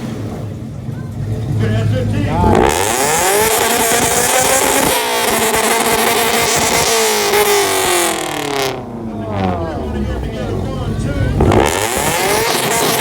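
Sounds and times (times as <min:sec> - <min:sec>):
car engine revving on limiter: 0:01.3 - 0:13.0.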